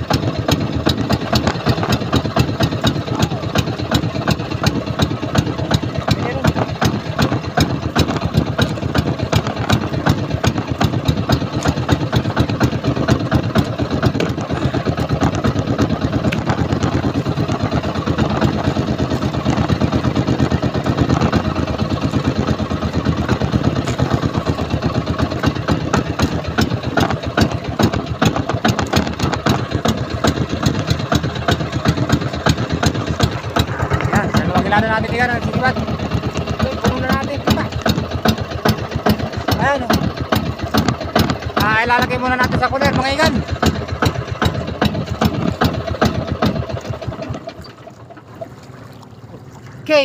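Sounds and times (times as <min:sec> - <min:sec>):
boat engine running: 0:00.0 - 0:50.0.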